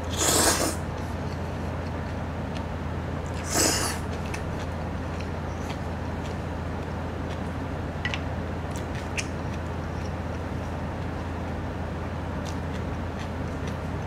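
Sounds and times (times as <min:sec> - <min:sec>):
steady hiss and low hum: 0:00.0 - 0:14.0
person chewing noodles: 0:00.1 - 0:08.0, 0:12.3 - 0:14.0.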